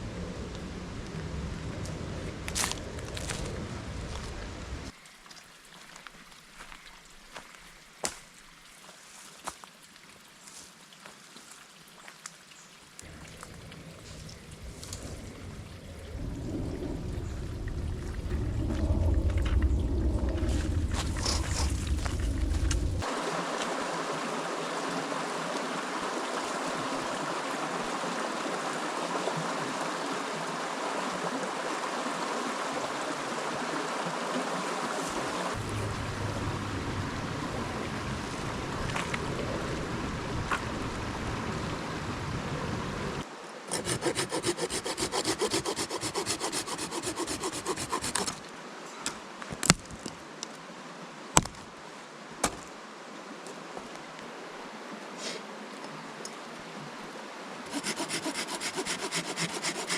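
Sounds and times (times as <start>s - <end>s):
river water rushing: 13.0s - 48.8s, 50.7s - 59.9s
hand saw cutting wood: 43.7s - 48.4s, 57.7s - 59.9s.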